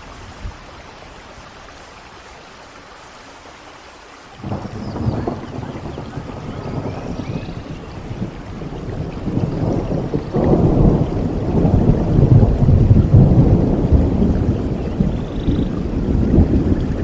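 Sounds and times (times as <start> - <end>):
heavy rain hiss: 0.0 - 17.0
thunder rumbling: 4.4 - 17.0.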